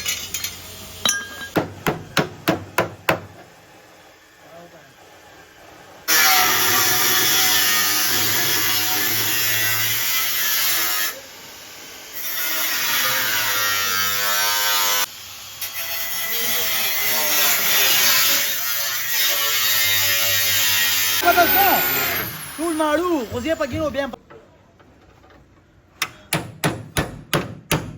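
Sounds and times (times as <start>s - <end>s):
electric power tool whining: 21.2s - 23.4s.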